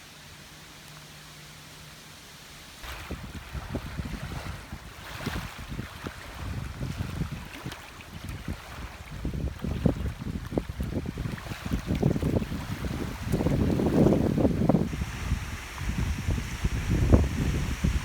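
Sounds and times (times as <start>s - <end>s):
wind buffeting microphone: 2.8s - 18.0s
faint steady hiss: 12.9s - 18.0s.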